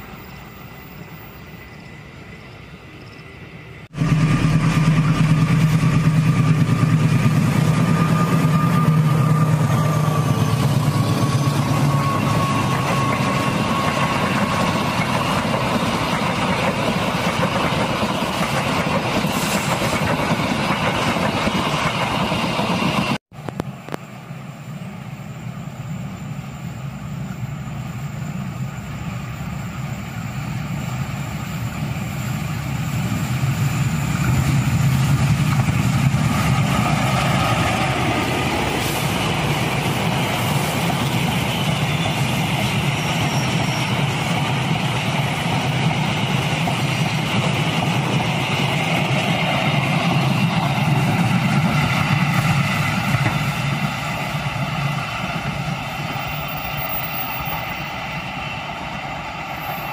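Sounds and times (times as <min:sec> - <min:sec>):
diesel locomotive engine: 0:00.0 - 0:59.9
train wheels rumbling on rails: 0:00.0 - 0:59.9
thin wheel squeal: 0:07.9 - 0:14.6, 0:42.9 - 0:44.2.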